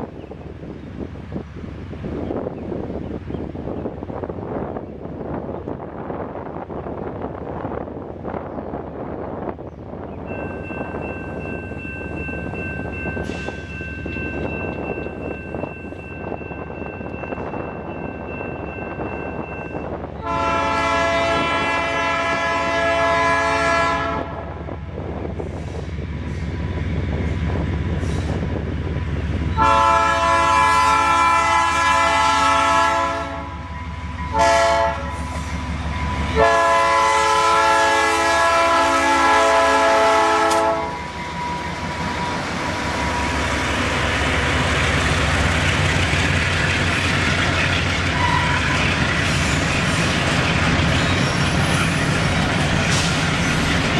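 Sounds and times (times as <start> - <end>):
train wheels rumbling and clattering: 0.0 - 53.9
locomotive air horn blasts: 20.2 - 24.6, 29.6 - 33.7, 34.3 - 35.4, 36.3 - 42.0, 48.1 - 48.7.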